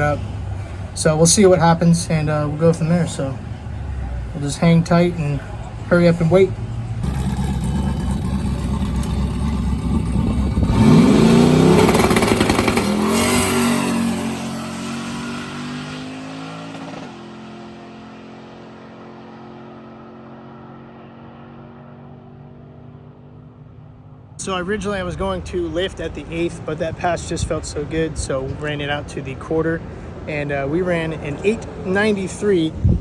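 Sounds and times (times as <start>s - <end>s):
drag car engine launching: 7.0s - 14.5s.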